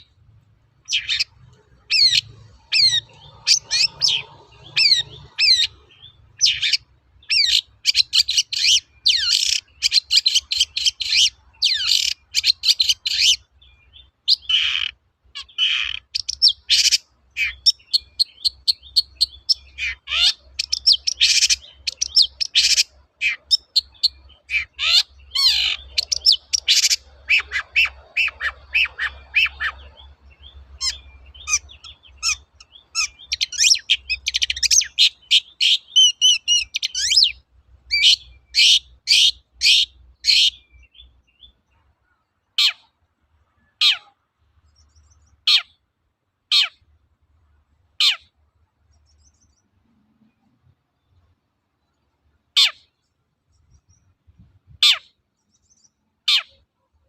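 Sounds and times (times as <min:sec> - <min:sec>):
shrike chattering and whistling: 0:00.9 - 0:13.4, 0:14.3 - 0:30.2, 0:30.8 - 0:40.7.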